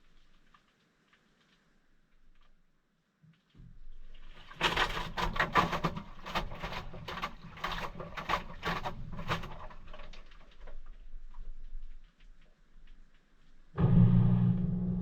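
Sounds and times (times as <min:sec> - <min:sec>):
washing machine motor hum: 0:13.8 - 0:15.0.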